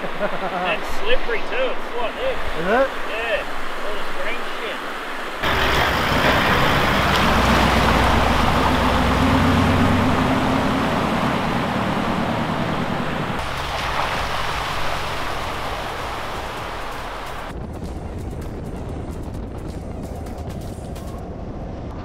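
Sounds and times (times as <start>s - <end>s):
tyre and road noise: 0.0s - 22.0s
low engine drone: 5.4s - 22.0s.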